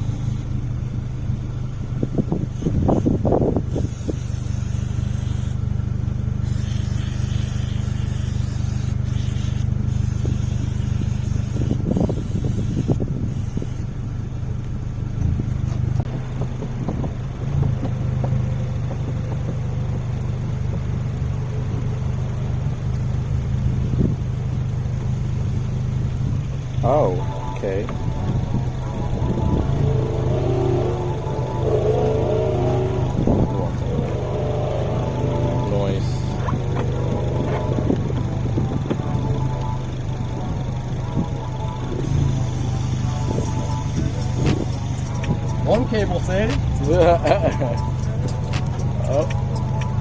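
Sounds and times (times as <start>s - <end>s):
engine idling: 0.0s - 50.0s
hiss: 3.8s - 5.6s, 6.4s - 13.9s.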